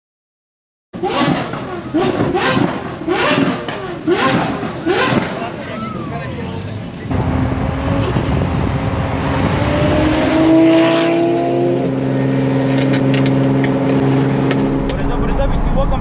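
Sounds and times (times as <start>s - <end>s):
car engine accelerating: 1.0s - 16.0s.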